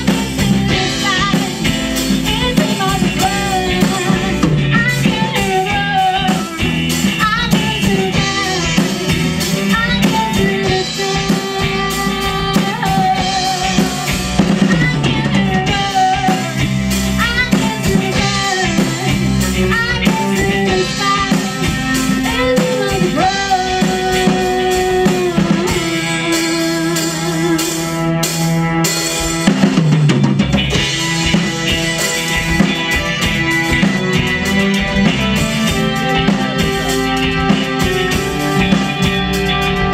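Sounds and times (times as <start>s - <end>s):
bass drum and rimshots: 0.0s - 39.9s
live rock band playing: 0.0s - 39.9s
sliding lead guitar line: 0.0s - 39.9s.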